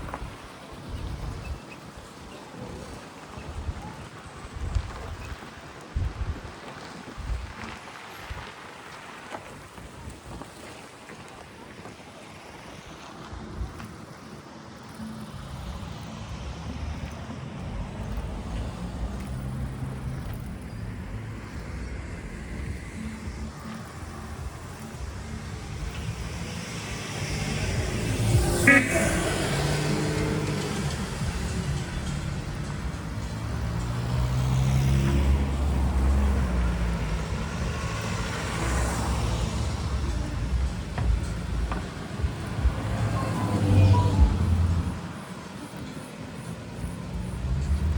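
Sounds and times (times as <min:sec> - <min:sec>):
vehicle engine rumbling: 0:14.8 - 0:47.9.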